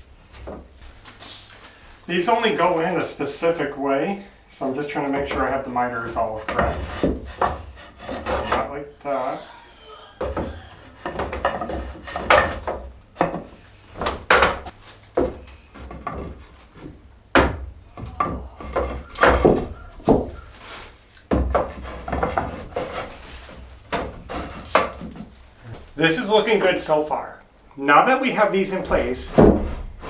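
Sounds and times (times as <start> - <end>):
wood rubbing and handling: 0.1 - 30.0
wood knocking on wood: 5.2 - 8.7, 10.2 - 20.6, 21.2 - 25.9, 28.7 - 30.0.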